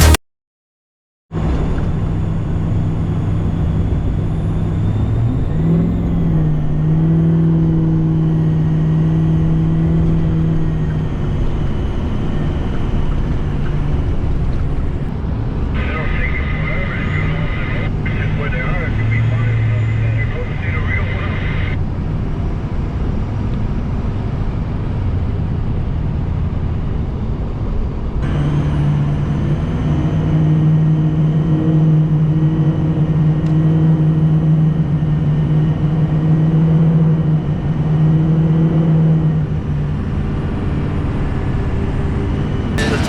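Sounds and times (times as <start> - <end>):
steady engine drone: 0.0 - 0.2, 1.4 - 43.0
vehicle engine and road noise: 0.0 - 0.2, 1.3 - 43.0.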